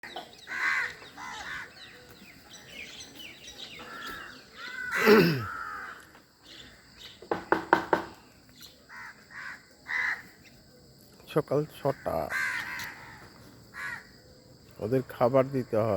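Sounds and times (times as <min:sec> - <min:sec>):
crows cawing: 0:00.0 - 0:02.1, 0:03.7 - 0:07.4, 0:08.9 - 0:10.4, 0:11.8 - 0:14.1
sharp knocks: 0:07.2 - 0:08.2.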